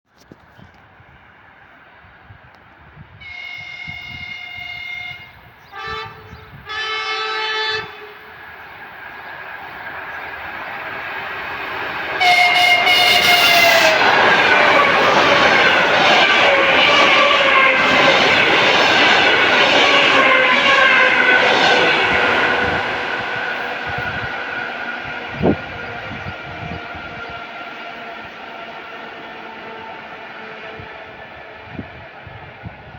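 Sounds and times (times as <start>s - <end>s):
train wheel and rail noise: 0.2s - 32.9s
train horn blasts: 3.2s - 8.3s, 12.2s - 14.2s.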